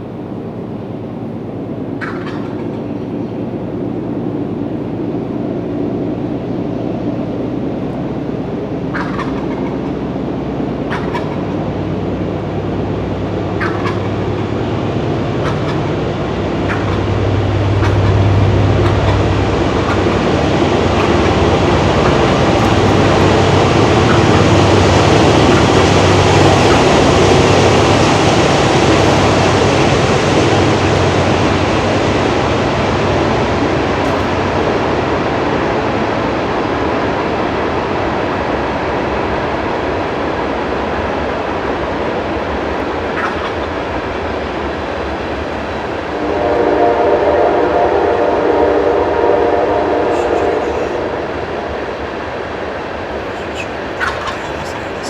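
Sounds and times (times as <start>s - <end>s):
train rumbling on tracks: 0.0s - 55.0s
train horn: 17.1s - 27.7s, 46.0s - 52.0s.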